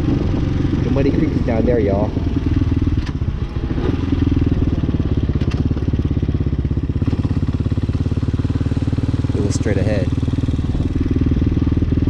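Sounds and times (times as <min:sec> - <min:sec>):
motorcycle engine pulsing exhaust: 0:00.0 - 0:12.0.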